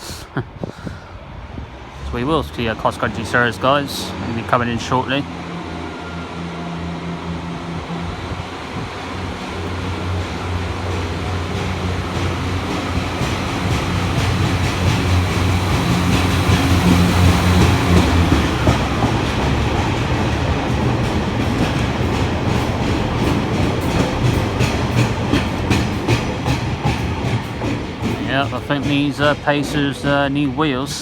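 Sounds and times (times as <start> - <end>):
diesel engines humming low: 0.0 - 25.6
wheels clunking on track: 1.8 - 31.0.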